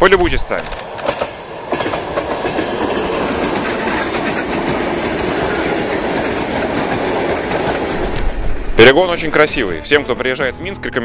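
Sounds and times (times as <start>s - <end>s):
train wheels running on rails: 0.1s - 9.3s.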